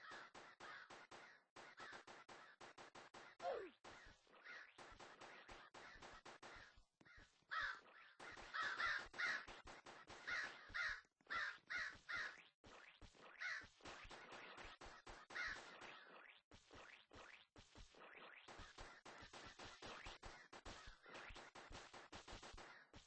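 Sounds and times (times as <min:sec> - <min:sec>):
crow cawing: 0:07.5 - 0:07.8, 0:08.5 - 0:09.4, 0:10.3 - 0:12.4, 0:13.4 - 0:13.6, 0:15.4 - 0:15.6.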